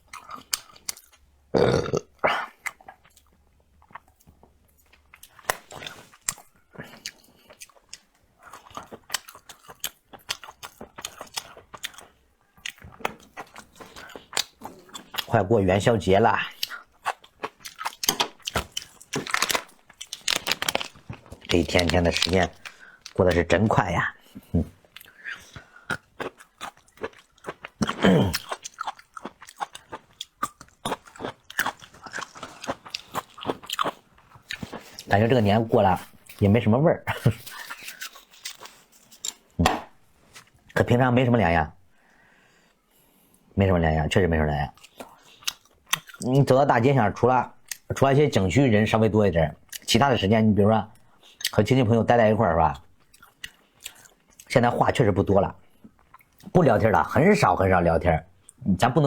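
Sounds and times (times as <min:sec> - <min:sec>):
wet chewing and smacking: 0:00.0 - 0:01.3, 0:02.6 - 0:15.4, 0:16.3 - 0:36.5, 0:37.1 - 0:40.8, 0:44.7 - 0:46.4, 0:52.8 - 0:54.7
person crunching food: 0:00.0 - 0:02.0, 0:02.6 - 0:15.4, 0:16.4 - 0:36.4, 0:37.2 - 0:40.7, 0:44.7 - 0:46.3.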